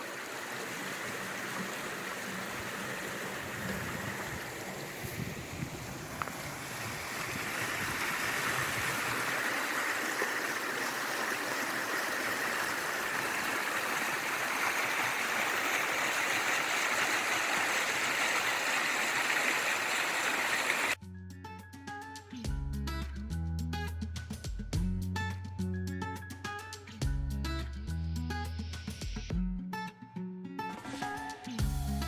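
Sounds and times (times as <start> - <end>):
fast stream water rushing: 0.0 - 21.0.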